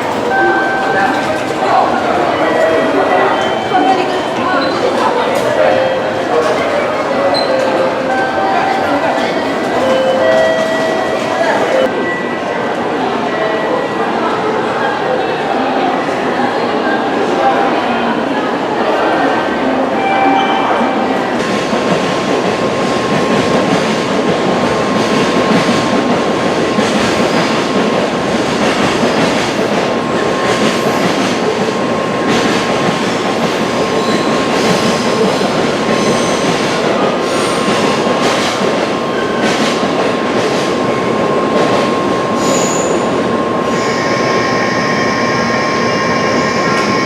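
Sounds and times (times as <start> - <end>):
train rumbling past: 20.6 - 47.0
steady high tones: 43.0 - 47.0.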